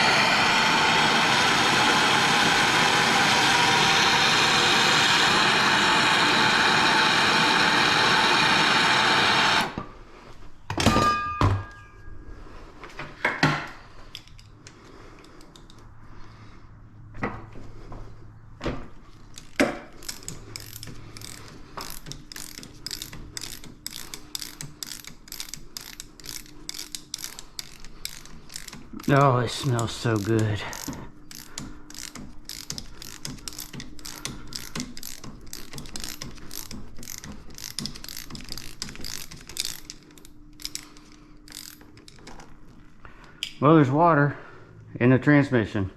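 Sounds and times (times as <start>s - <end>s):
loud machine noise: 0.0s - 9.8s
ratchet wrench clicking: 19.3s - 42.4s.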